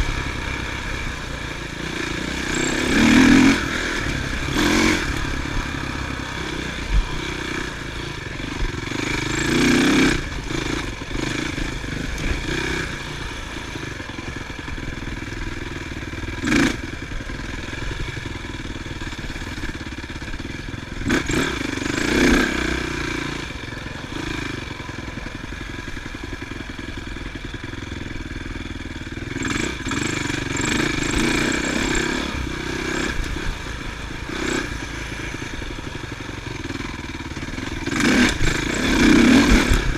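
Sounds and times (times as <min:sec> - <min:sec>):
motocross engines revving: 0:00.0 - 0:15.4, 0:20.9 - 0:26.3, 0:29.3 - 0:39.9.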